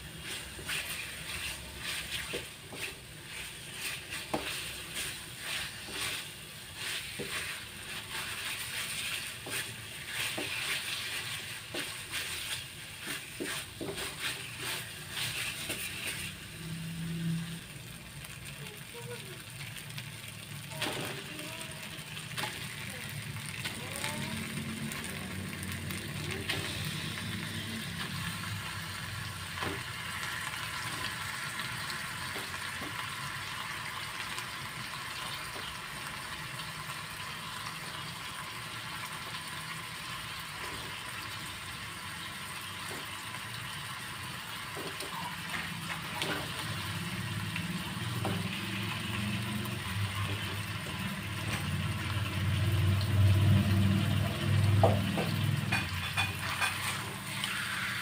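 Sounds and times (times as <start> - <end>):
paste sizzling in a wok: 0.0 - 58.0
wooden spatula scraping pan: 0.1 - 16.5, 55.7 - 57.5.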